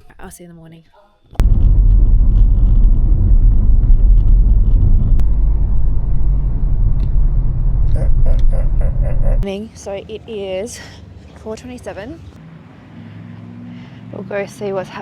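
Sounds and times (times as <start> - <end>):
vehicle driving rumble: 1.4 - 9.5.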